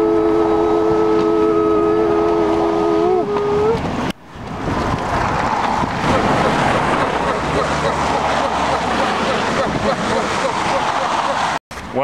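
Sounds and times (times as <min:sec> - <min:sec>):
steady rushing noise: 0:03.8 - 0:11.6.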